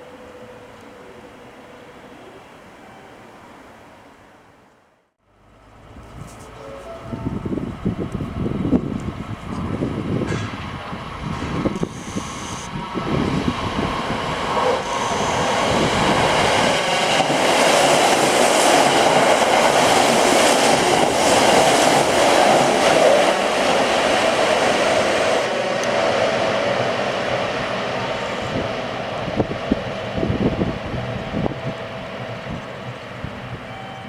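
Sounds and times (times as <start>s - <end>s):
electric train passing: 0.0s - 4.7s, 5.3s - 34.0s.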